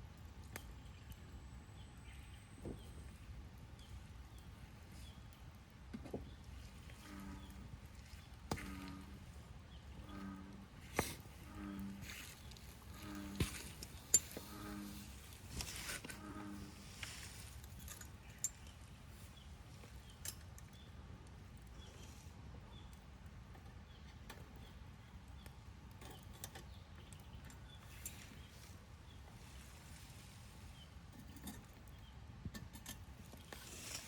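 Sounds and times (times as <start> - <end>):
campfire crackling: 0.0 - 1.8, 3.1 - 34.0
low steady rumble: 1.0 - 23.4.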